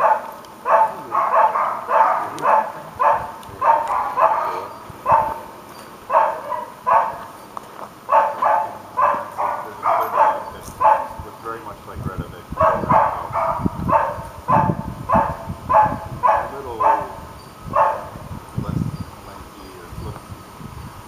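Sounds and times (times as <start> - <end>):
dog barking: 0.0 - 5.5, 6.1 - 7.3, 8.1 - 11.2, 12.6 - 18.2.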